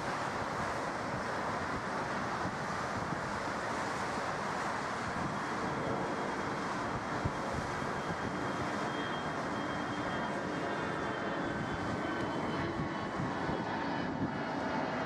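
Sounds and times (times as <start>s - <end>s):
jet engines rushing: 0.0s - 15.0s
faint high whine: 4.1s - 15.0s.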